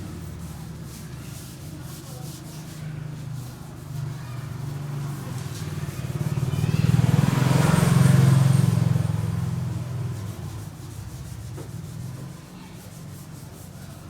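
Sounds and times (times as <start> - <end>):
vehicle engine hum passing: 4.6 - 14.0.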